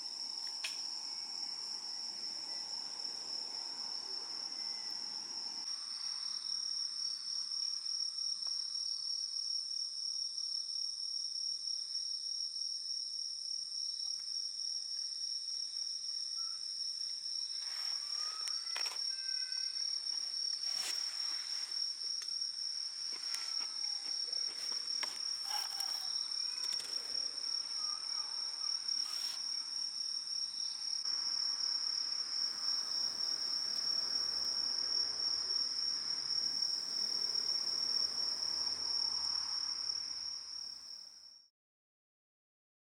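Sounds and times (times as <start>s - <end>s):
night insects trilling: 0.0s - 41.4s
campfire crackling: 20.6s - 27.8s.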